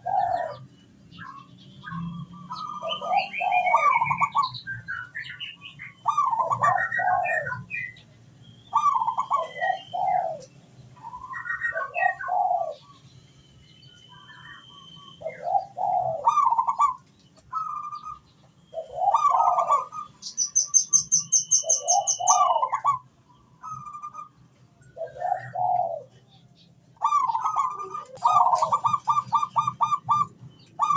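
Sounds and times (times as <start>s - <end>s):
doves cooing: 0.0s - 5.3s, 5.9s - 8.0s, 8.7s - 13.0s, 14.2s - 26.3s, 27.0s - 30.9s
small birds chirping and whistling: 0.0s - 30.9s
fast high bird trill: 19.3s - 23.0s.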